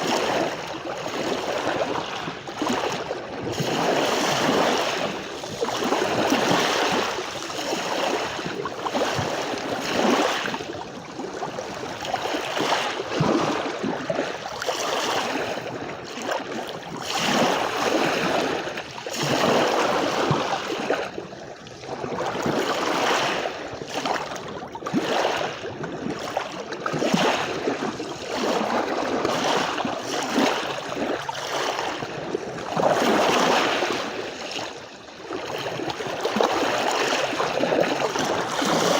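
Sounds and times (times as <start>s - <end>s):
sea waves washing onto beach: 0.0s - 21.1s.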